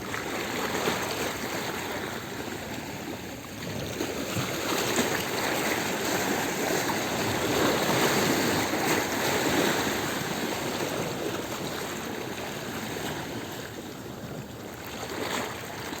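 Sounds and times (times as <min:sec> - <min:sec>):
sea waves washing over stones: 0:00.0 - 0:16.0.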